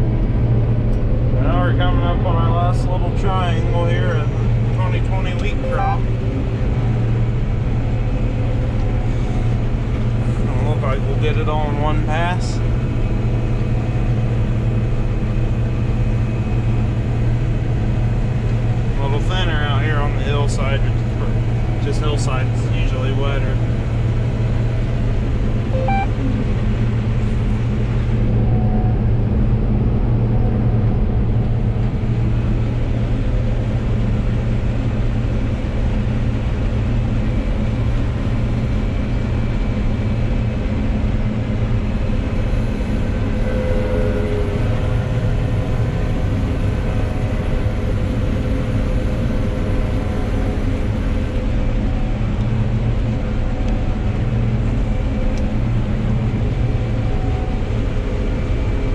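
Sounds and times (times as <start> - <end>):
combine harvester drone: 0.0 - 58.9.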